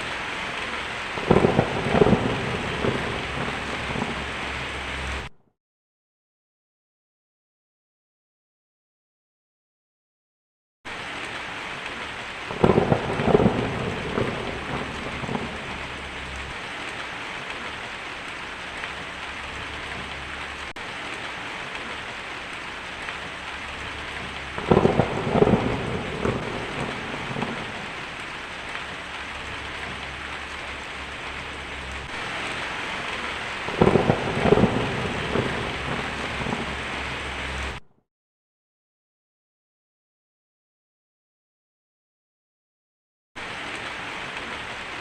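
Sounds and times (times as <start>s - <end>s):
steady rain: 0.0s - 5.3s, 10.9s - 37.8s, 43.4s - 45.0s
thunder rolling: 0.0s - 5.3s, 12.4s - 17.8s, 23.0s - 37.8s.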